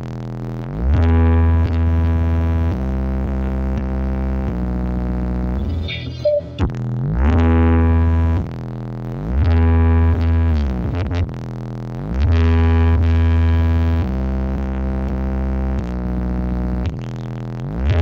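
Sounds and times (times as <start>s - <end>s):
heavy deep bass: 0.0s - 18.0s
synthesizer line: 5.6s - 6.8s.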